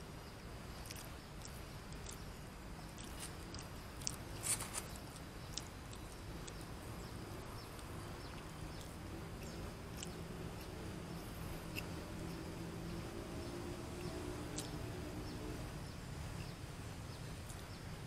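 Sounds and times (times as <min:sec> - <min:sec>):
low background noise: 0:00.0 - 0:18.0
sharp clicks and crunches: 0:00.8 - 0:02.3, 0:02.9 - 0:06.7
person chewing food: 0:00.8 - 0:14.9.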